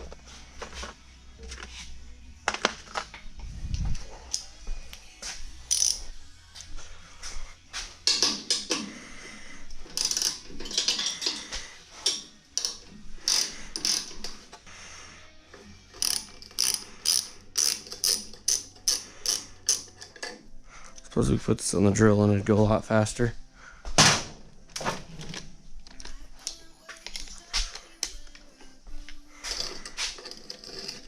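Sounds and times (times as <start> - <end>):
socket ratchet clicking: 5.7 - 6.0, 9.9 - 11.4, 12.0 - 14.4, 15.9 - 20.4.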